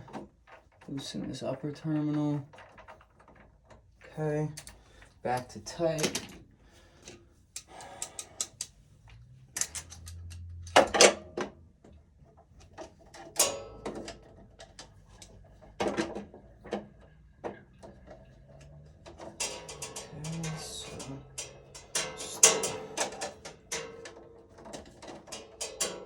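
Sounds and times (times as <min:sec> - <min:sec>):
screwdriver clicking on terminals: 0:07.6 - 0:08.7.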